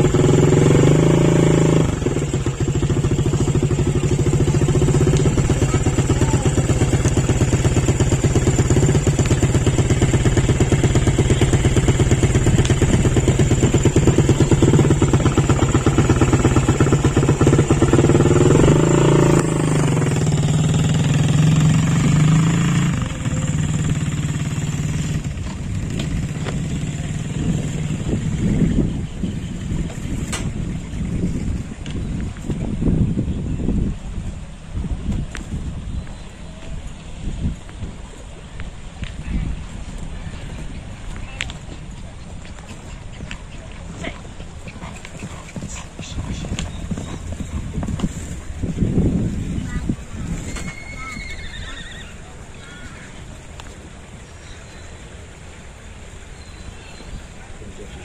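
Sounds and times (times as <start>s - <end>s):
small engine running: 0.0s - 31.7s.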